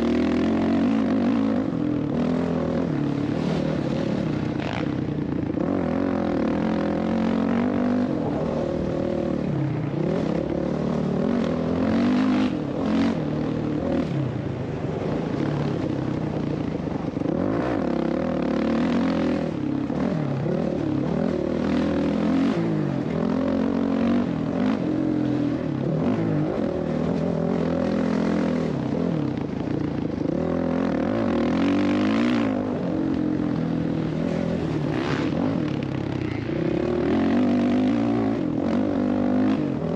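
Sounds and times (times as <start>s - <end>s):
dirt bike engine revving: 34.2s - 39.9s.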